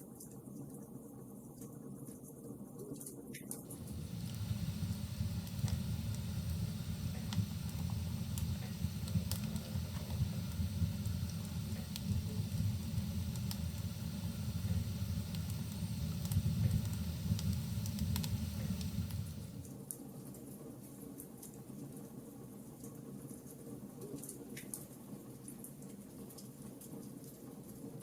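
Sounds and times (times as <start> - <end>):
wood fire crackling: 3.7 - 19.7.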